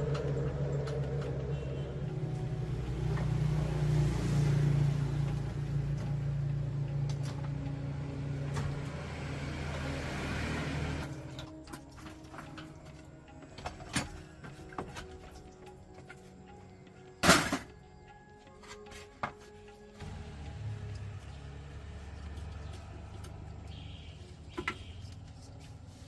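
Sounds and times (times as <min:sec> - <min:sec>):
small car engine running: 0:00.0 - 0:11.7, 0:18.6 - 0:26.0.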